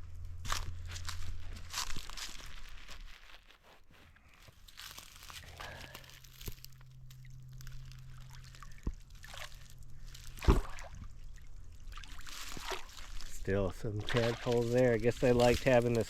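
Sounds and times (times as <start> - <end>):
pond water sloshing and dripping: 4.4 - 16.0.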